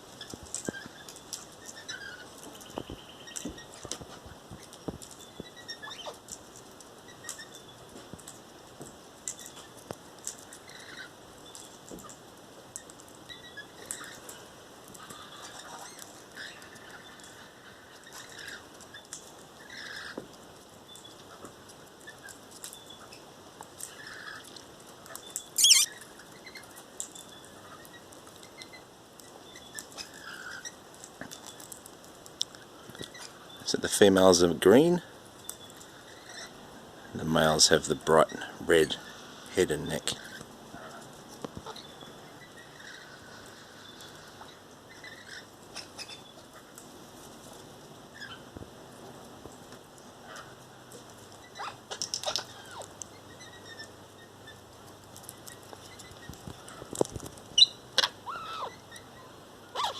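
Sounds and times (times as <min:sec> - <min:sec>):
parrots chirping softly: 0:00.0 - 0:59.9
beaks cracking seeds: 0:23.7 - 0:26.0, 0:51.7 - 0:53.1
parrot screech: 0:25.6 - 0:26.0
seed husks cracking: 0:51.2 - 0:53.2, 0:54.8 - 0:58.4.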